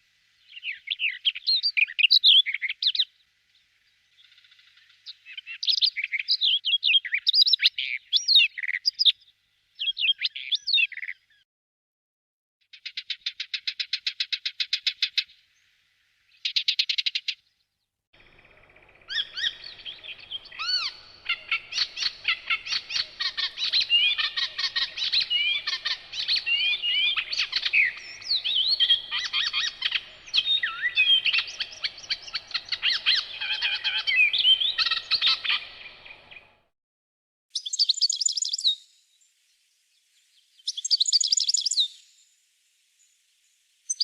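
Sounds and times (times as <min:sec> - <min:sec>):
songbird singing whistles and chirps: 0:00.4 - 0:03.2, 0:04.1 - 0:11.4, 0:18.2 - 0:36.7, 0:37.5 - 0:42.3, 0:43.0 - 0:44.0
rapid bird trills: 0:18.2 - 0:36.7.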